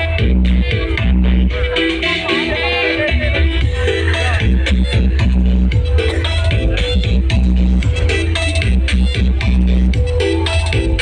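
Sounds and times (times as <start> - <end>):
electronic dance music with heavy bass: 0.0 - 11.0.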